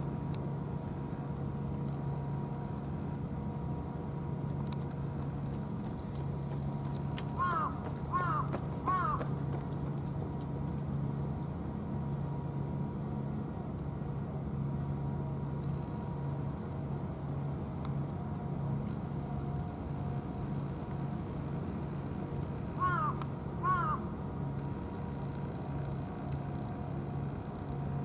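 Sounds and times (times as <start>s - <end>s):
idling engine hum: 0.0s - 28.0s.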